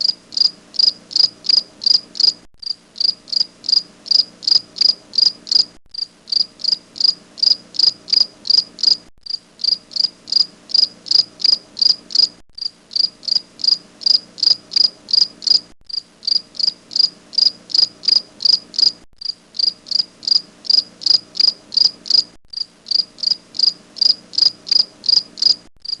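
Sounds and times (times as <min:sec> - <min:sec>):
cricket chirping: 0:00.0 - 0:26.0.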